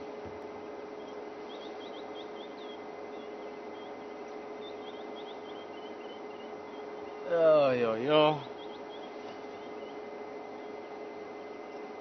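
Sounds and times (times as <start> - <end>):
constant hum: 0.0 - 12.0
small bird chirping: 1.0 - 7.3, 8.0 - 10.0.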